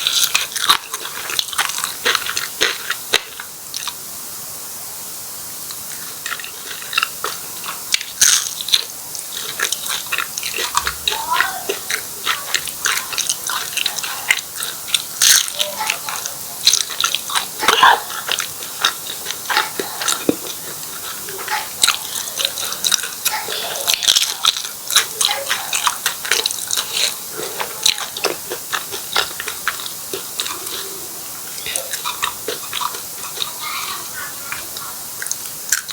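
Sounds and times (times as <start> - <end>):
chewing and biting food: 0.0 - 4.1, 5.7 - 35.9.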